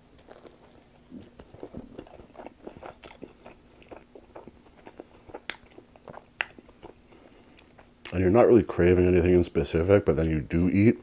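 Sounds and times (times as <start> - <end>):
person biting and chewing: 0.0 - 8.2.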